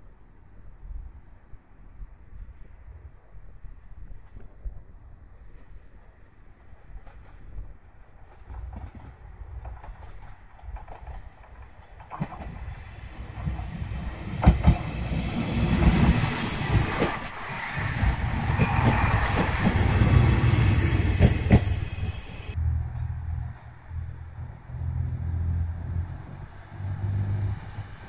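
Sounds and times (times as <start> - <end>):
diesel railcar passing: 5.5 - 28.0
wheels clacking over rail joints: 6.9 - 22.6.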